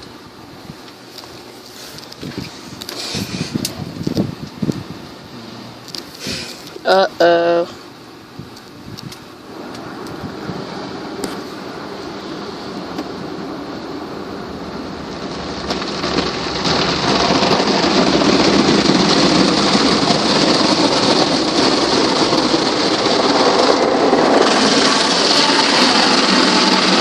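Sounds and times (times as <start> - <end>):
water jets drumming on car: 0.0 - 27.0.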